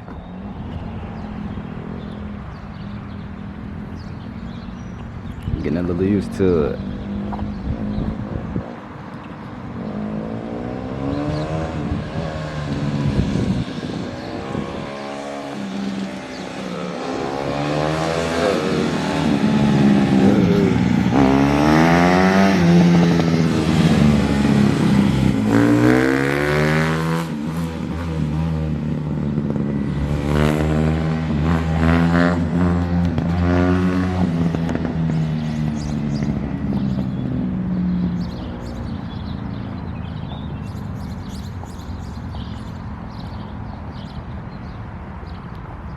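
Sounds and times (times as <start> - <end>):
dirt bike engine revving: 14.3 - 37.3.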